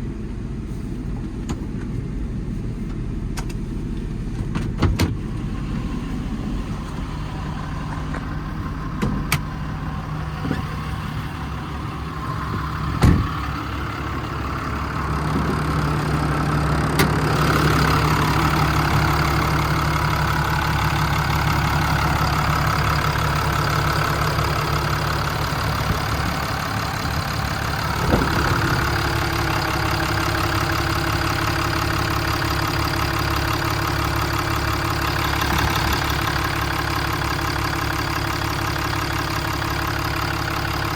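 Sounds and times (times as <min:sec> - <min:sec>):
diesel engine idling: 0:00.0 - 0:40.9
sharp clunks: 0:12.9 - 0:13.4.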